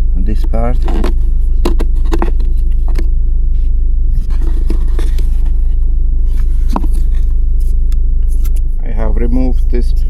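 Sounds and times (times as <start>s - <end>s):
low rumble in car: 0.0s - 10.0s
plastic clicks and scrapes: 0.7s - 3.1s.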